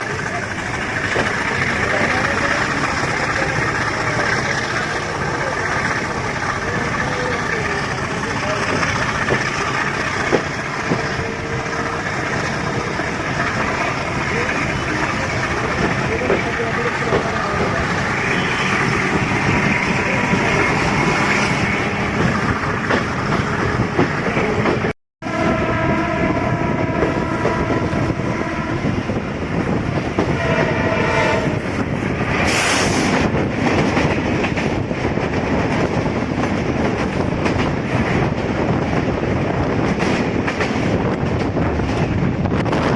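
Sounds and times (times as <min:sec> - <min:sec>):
passenger trains rumbling past: 0:00.0 - 0:42.9
train horn: 0:25.2 - 0:29.2, 0:30.2 - 0:31.8.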